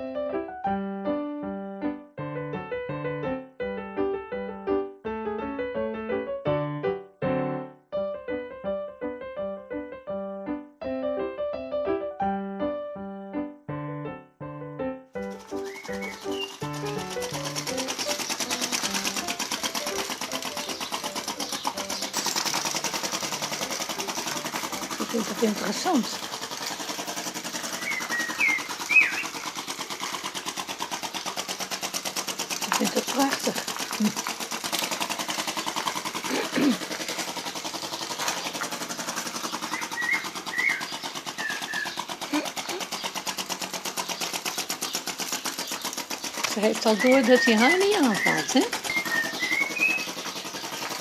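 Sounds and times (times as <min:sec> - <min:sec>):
model engine ticking rhythmically: 0:15.2 - 0:51.0.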